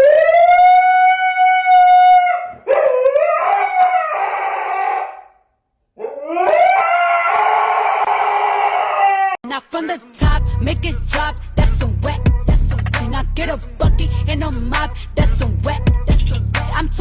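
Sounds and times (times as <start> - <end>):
dog howling: 0.0 - 5.4, 6.0 - 9.4.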